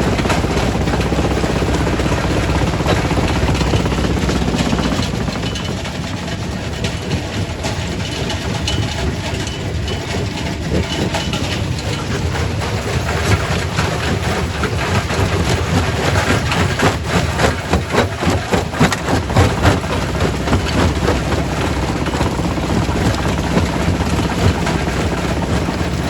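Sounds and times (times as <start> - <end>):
heavy machinery rumble: 0.0 - 26.0
rock cracking in crusher: 10.2 - 26.0.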